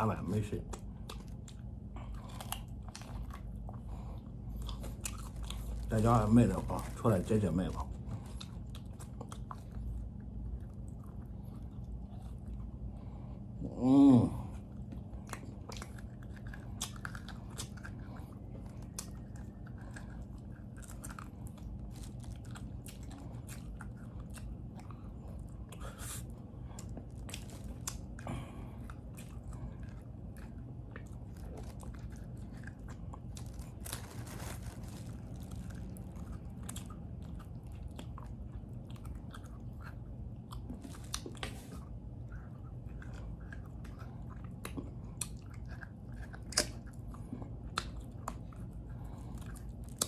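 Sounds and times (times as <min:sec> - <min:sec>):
man chewing and gnawing: 0:00.0 - 0:13.7, 0:14.3 - 0:50.0
steady low hum: 0:00.0 - 0:50.0
wet mouth clicks and smacks: 0:44.6 - 0:46.8.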